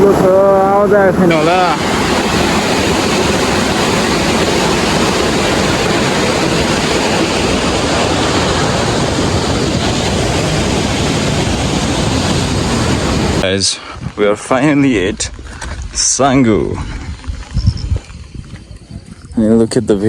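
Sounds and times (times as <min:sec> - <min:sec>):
river water rushing: 0:00.0 - 0:13.4.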